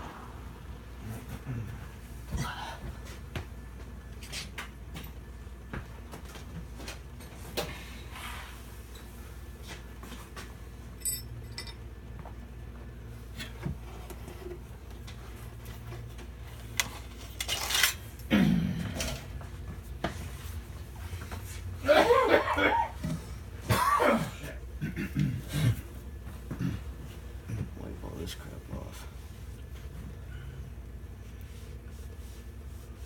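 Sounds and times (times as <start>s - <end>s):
wrench clinking on metal: 11.0s - 11.8s.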